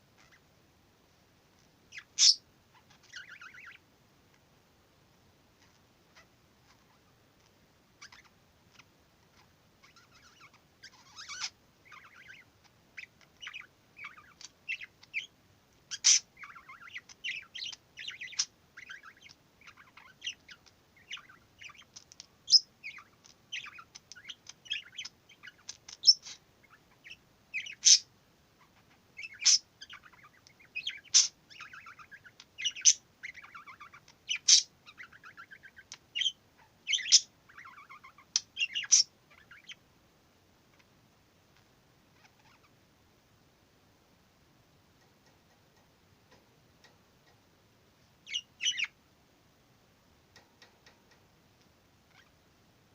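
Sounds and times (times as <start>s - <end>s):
budgerigar chattering: 1.9s - 3.8s, 9.4s - 15.3s, 15.9s - 28.1s, 28.7s - 39.8s, 48.2s - 49.0s
sharp bird chirps: 1.9s - 3.8s, 29.2s - 39.8s, 48.2s - 49.0s.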